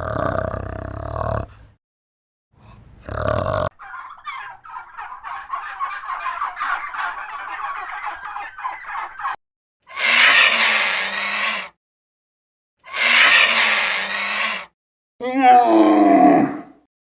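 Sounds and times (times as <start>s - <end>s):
turkeys gobbling: 3.7s - 9.4s
low animal call: 9.9s - 11.7s, 12.9s - 16.8s.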